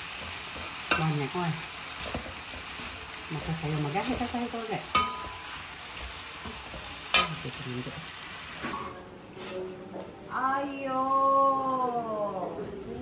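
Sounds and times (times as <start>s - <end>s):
greens sizzling in a hot pan: 0.0s - 8.8s.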